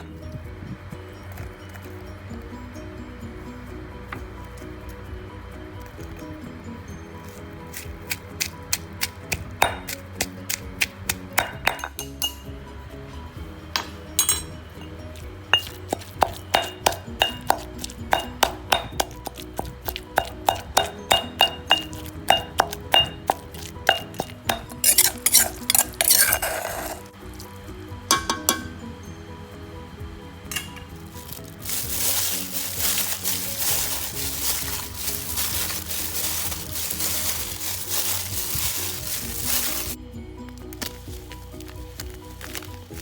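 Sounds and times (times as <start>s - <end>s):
background music: 0.0s - 43.0s
kitchen utensils clinking: 13.8s - 15.0s, 20.8s - 27.1s, 28.1s - 28.8s, 30.5s - 40.0s.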